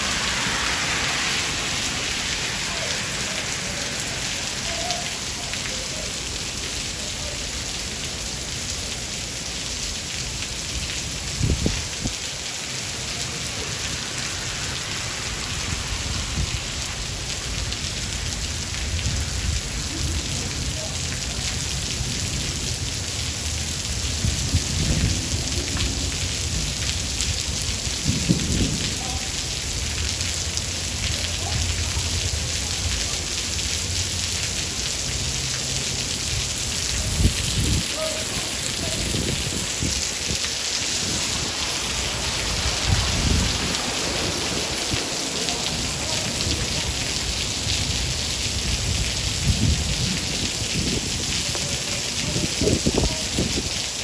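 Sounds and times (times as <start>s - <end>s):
thunder rumbling: 0.0s - 6.1s, 13.3s - 33.1s, 36.2s - 51.3s
rain hissing: 0.0s - 54.0s.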